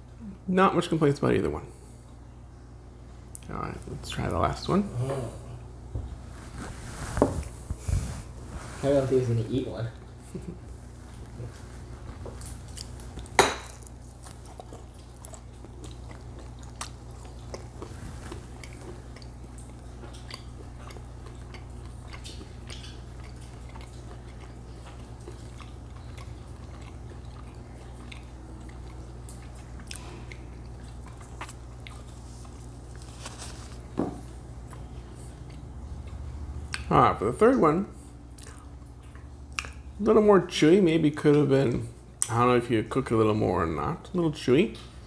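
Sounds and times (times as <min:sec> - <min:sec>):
low room hum: 0:00.0 - 0:45.0
people chewing crisp bacon: 0:09.9 - 0:45.0.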